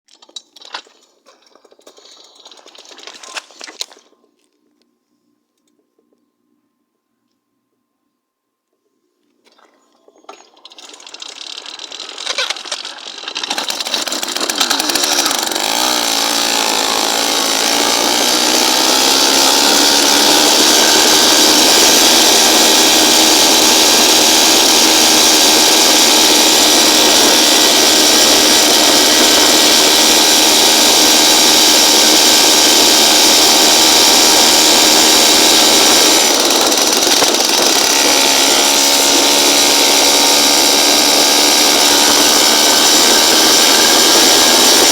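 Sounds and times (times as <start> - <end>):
small engine sputtering and revving: 9.6 - 44.9.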